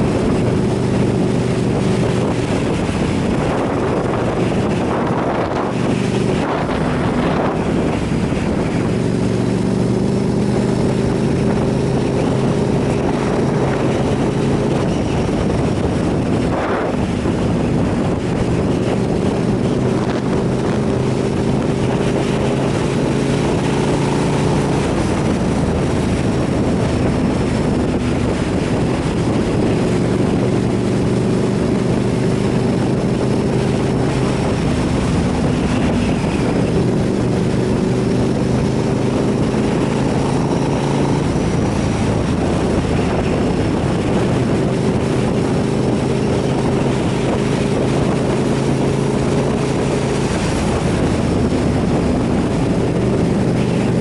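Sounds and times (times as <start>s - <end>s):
motorcycle engine running: 0.0s - 54.0s
wind noise on microphone: 0.0s - 54.0s.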